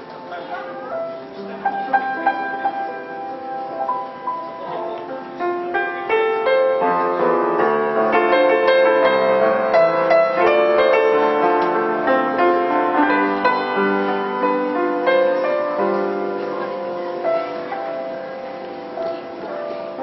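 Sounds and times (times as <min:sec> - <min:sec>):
piano playing: 0:00.0 - 0:20.0.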